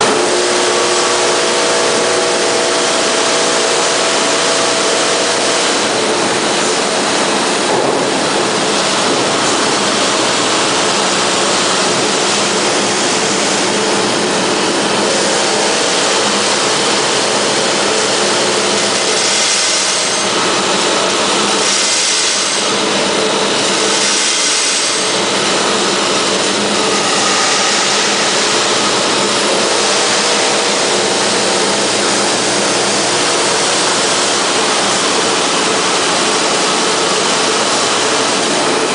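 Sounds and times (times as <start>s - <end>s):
machine running loudly: 0.0s - 38.9s.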